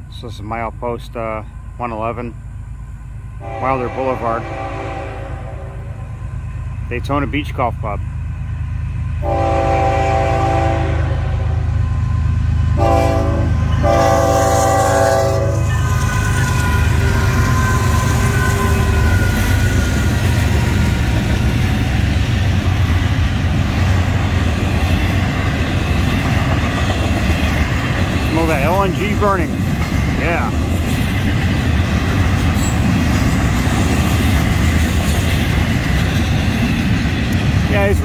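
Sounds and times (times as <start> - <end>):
freight train rumbling on rails: 0.0 - 38.0
locomotive horn blasts: 3.4 - 6.0, 9.2 - 11.7, 12.8 - 19.1.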